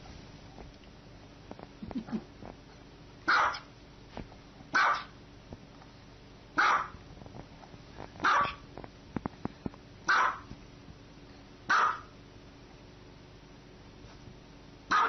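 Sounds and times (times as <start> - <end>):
dog barking: 3.3 - 3.7, 4.7 - 5.2, 6.6 - 7.0, 8.2 - 8.6, 10.1 - 10.5, 11.7 - 12.1.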